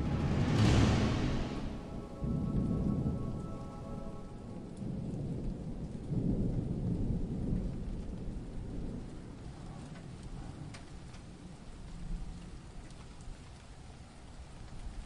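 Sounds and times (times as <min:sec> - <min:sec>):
sustained synth chord: 0:00.0 - 0:05.3
thunder rumbling: 0:00.0 - 0:12.7
rain hiss: 0:00.0 - 0:15.0.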